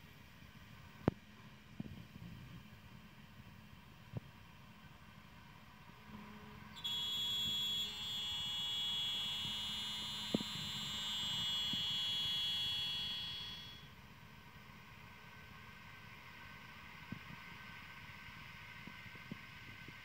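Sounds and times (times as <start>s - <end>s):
milling machine spindle whine: 5.4s - 20.0s.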